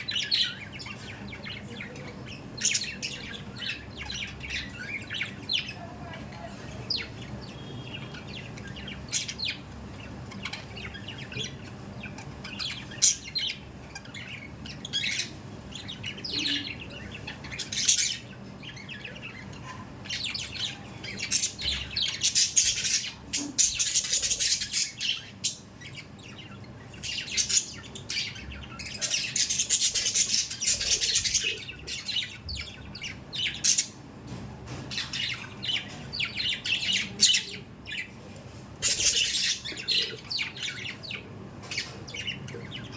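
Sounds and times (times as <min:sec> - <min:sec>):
budgerigars chirping: 0:00.0 - 0:34.0, 0:34.9 - 0:42.9.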